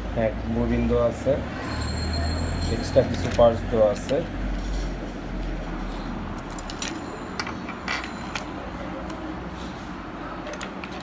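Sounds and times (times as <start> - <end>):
small metal parts clinking: 6.4 - 8.6.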